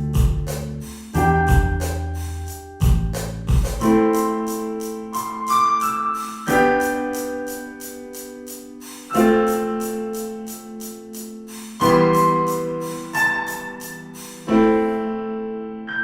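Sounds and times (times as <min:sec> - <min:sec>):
soft piano chords: 0:01.1 - 0:16.0
hi-hat ticks: 0:06.2 - 0:14.5.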